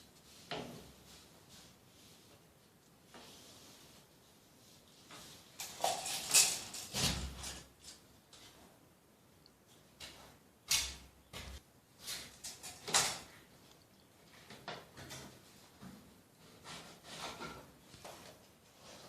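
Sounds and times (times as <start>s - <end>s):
knocks and scrapes on plumbing: 14.4s - 19.0s.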